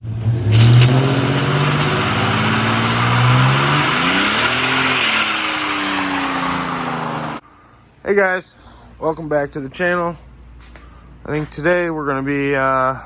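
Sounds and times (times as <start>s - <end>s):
vehicle engine accelerating: 0.0s - 7.4s.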